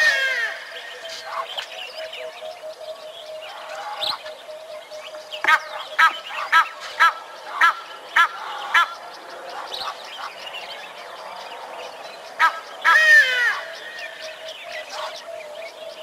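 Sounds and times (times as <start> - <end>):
bird honking: 5.4 - 9.0, 12.4 - 15.3.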